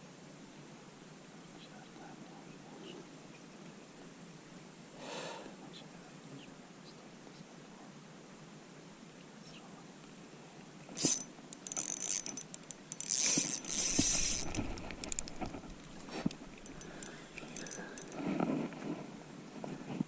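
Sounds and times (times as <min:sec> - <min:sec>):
fishing tackle rattling clicks: 0:11.0 - 0:18.2.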